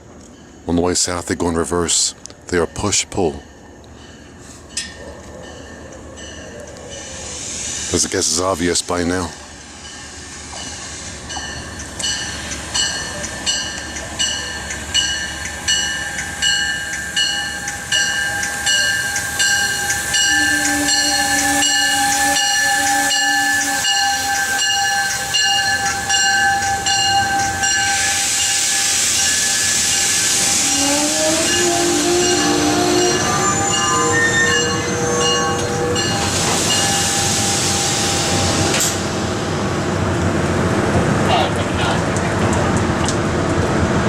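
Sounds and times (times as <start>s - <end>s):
train whine: 0.0s - 44.0s
train warning bell ringing: 0.2s - 7.3s, 7.9s - 39.7s
train brakes squealing: 2.8s - 39.4s
loud air hiss: 7.1s - 11.3s, 27.5s - 39.7s.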